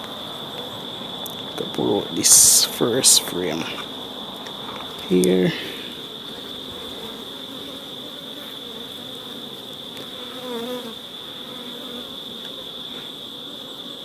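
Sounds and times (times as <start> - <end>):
honeybees buzzing: 0.0 - 14.0
bee buzzing close by: 5.9 - 14.0.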